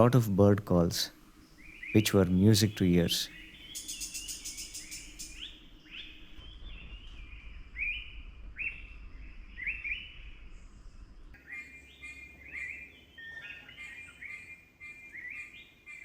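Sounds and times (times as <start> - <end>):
steady bird calls: 0.0 - 6.4, 11.4 - 16.0.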